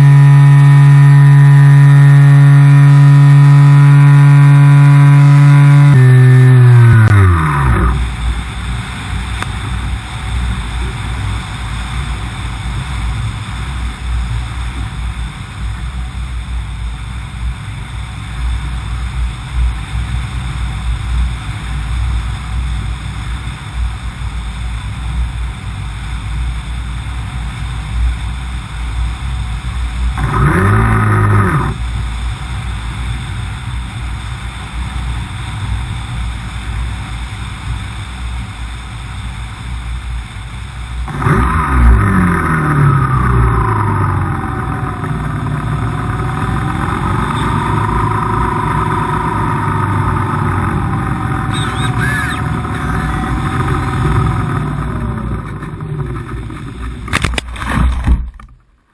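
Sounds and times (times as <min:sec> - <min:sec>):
electric motor whine spinning down: 0:00.0 - 0:11.0, 0:29.8 - 0:58.2.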